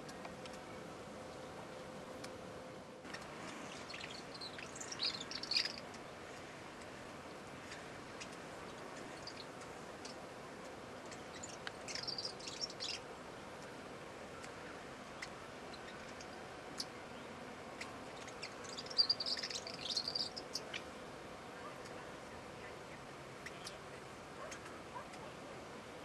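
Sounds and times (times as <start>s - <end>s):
faint background hiss: 0.0s - 26.0s
small bird chattering: 3.1s - 6.5s, 7.6s - 10.2s, 11.0s - 13.1s, 15.2s - 20.9s.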